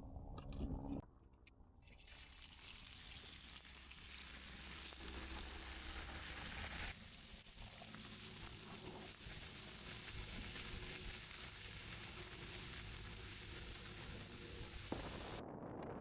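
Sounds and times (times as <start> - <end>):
food sizzling over campfire: 2.0 - 15.4.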